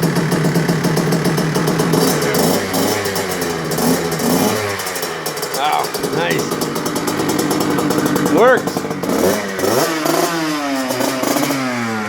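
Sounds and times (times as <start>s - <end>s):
two-stroke engine running: 0.0s - 12.0s.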